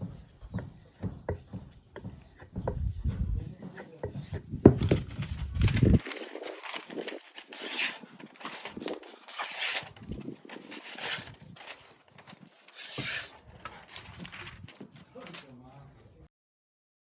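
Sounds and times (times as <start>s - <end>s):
knife scraping through sharpener: 7.6s - 8.0s, 9.3s - 9.9s, 10.7s - 11.3s, 12.7s - 13.4s.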